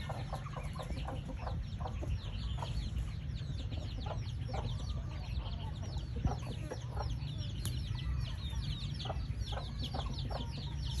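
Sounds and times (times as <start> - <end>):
chicks peeping: 0.0 - 11.0
clucking calls: 0.0 - 11.0
steady low rumble: 0.0 - 11.0.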